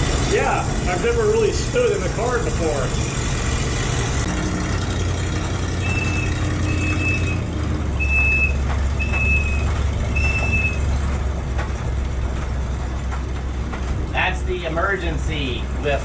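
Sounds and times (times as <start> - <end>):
truck engine driving: 0.0 - 16.0
whistle toots: 5.8 - 7.4, 8.0 - 10.8.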